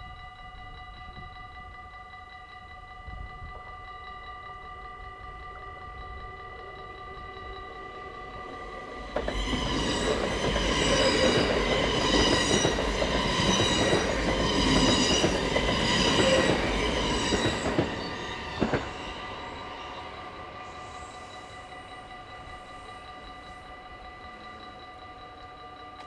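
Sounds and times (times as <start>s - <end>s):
crossing warning bell ringing: 0.0s - 26.0s
train wheels rumbling on rails: 6.2s - 26.0s.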